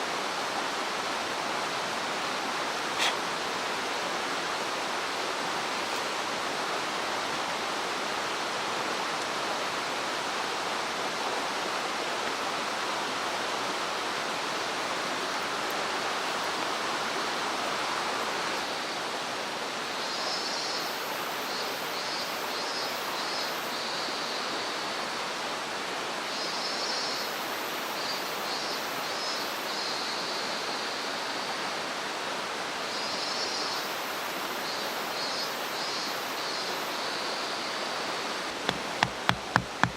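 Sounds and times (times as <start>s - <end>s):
stream water rushing: 0.0s - 20.2s, 23.7s - 26.4s, 33.8s - 39.9s.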